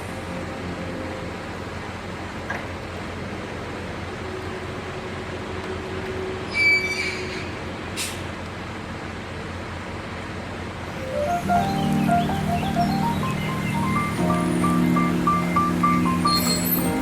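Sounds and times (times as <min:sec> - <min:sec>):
loud high squeal: 0:06.5 - 0:07.6, 0:16.1 - 0:17.0
vehicle rumble: 0:07.5 - 0:17.0
short hiss: 0:08.0 - 0:08.3.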